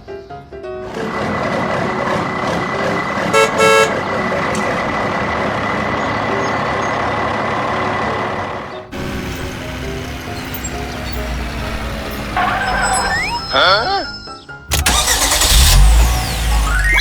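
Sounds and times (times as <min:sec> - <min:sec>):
truck engine driving off: 0:00.8 - 0:17.0
truck horn toots: 0:03.1 - 0:04.4, 0:12.2 - 0:15.6.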